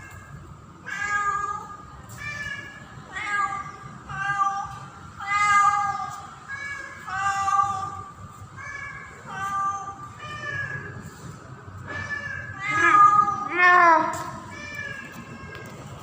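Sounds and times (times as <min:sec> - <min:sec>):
cat meowing loudly: 0:11.8 - 0:15.7.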